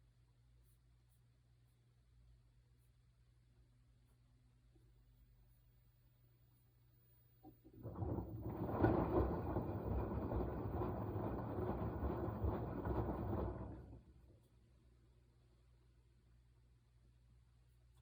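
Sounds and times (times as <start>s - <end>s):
washing machine drum churning: 7.4s - 14.8s.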